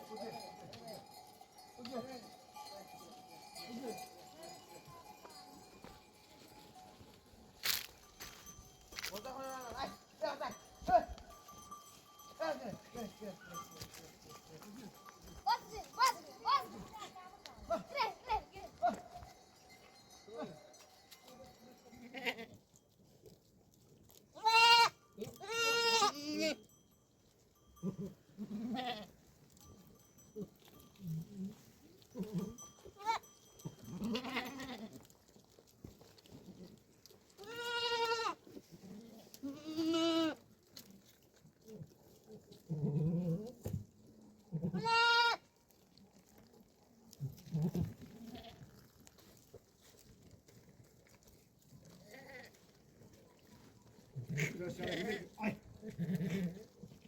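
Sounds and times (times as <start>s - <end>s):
goats bleating: 9.1s - 19.7s, 22.0s - 22.6s, 24.4s - 26.6s, 27.8s - 29.1s, 32.1s - 35.0s, 37.3s - 40.4s, 42.7s - 43.5s, 44.5s - 45.5s, 47.5s - 48.6s, 52.0s - 52.6s, 54.2s - 56.7s.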